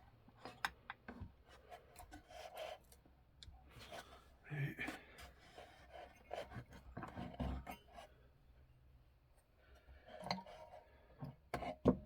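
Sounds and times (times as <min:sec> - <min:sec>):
small clicks and scrapes of tools: 0:00.4 - 0:04.2.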